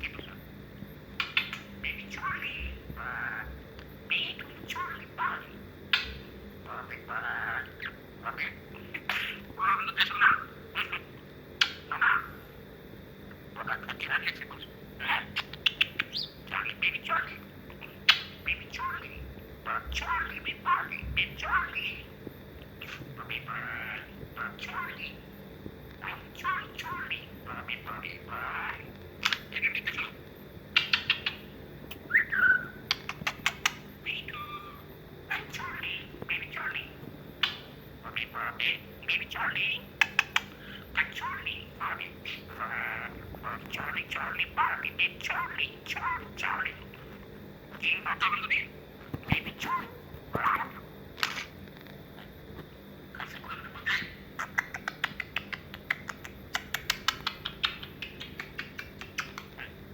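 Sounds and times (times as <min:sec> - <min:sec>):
budgerigar chattering: 0:01.2 - 0:12.4, 0:13.6 - 0:25.4, 0:26.0 - 0:47.1, 0:53.2 - 0:59.9
budgerigar whistling: 0:01.2 - 0:12.4, 0:26.0 - 0:46.9
budgerigar sharp clicks: 0:11.6 - 0:12.0, 0:53.8 - 0:59.7.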